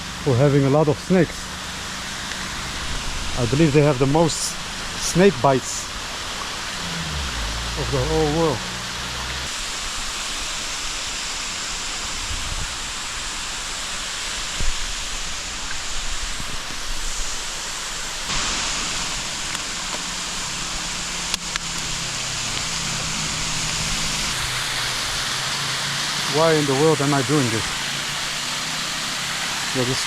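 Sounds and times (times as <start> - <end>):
water rushing: 0.0 - 30.0.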